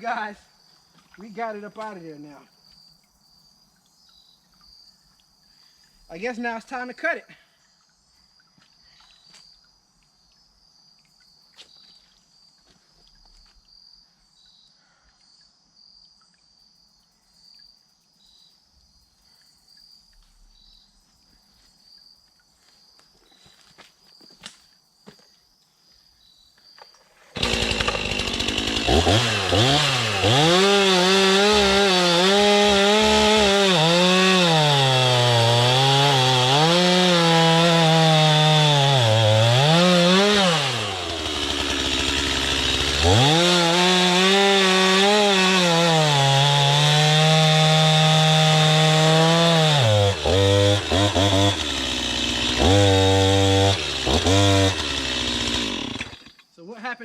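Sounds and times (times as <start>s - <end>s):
insects chirping: 0.0s - 27.5s
chainsaw revving: 27.4s - 56.5s.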